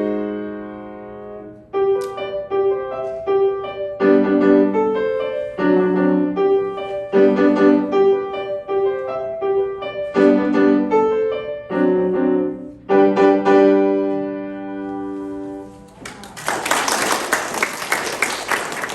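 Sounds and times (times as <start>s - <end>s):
solo piano chords: 0.0s - 16.0s
audience applause: 15.9s - 18.9s.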